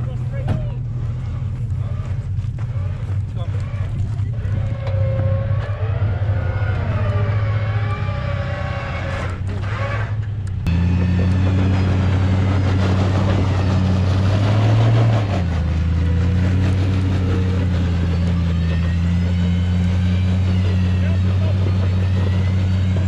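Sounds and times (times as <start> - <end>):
truck engine running: 0.0 - 23.0.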